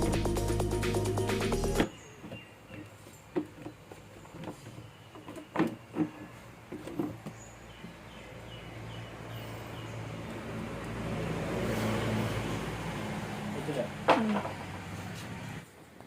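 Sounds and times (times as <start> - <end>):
vehicle engine approaching: 8.0 - 15.6.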